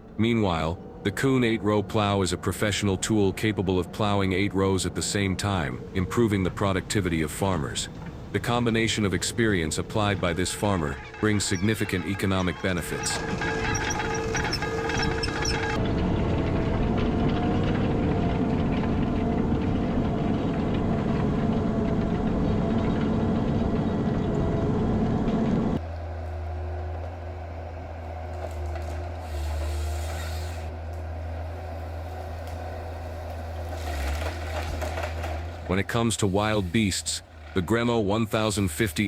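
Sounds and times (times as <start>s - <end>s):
deep engine hum: 0.0s - 39.0s
heavy diesel engine running: 0.7s - 39.0s
scraping or rustling noises: 33.6s - 35.7s.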